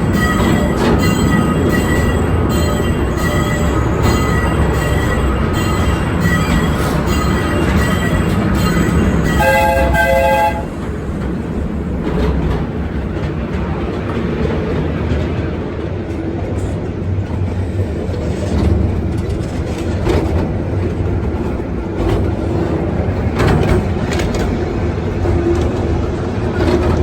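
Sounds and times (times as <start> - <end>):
rail joint clicks: 0.0 - 27.0
wheels rumbling on rails: 0.0 - 27.0.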